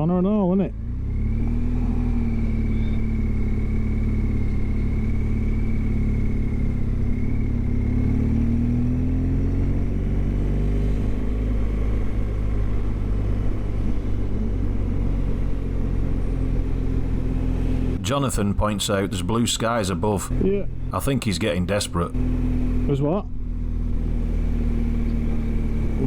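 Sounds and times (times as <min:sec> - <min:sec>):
road and wind noise: 0:00.7 - 0:18.0.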